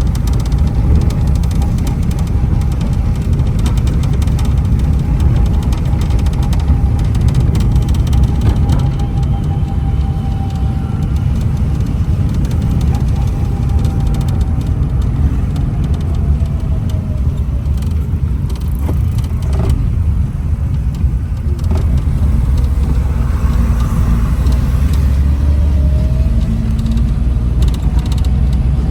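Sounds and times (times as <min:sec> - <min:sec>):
low rumble of road vehicles: 0:00.0 - 0:28.9.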